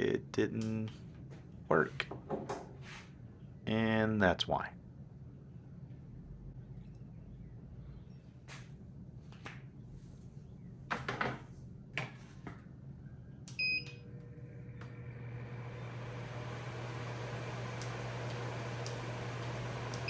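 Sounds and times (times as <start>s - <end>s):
fan rushing noise: 14.0s - 20.0s.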